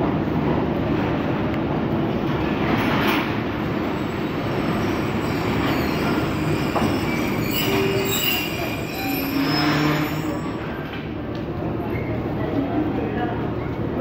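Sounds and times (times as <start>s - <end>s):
train wheels rumbling on rail: 0.0s - 14.0s
high wheel squeals: 3.8s - 11.0s.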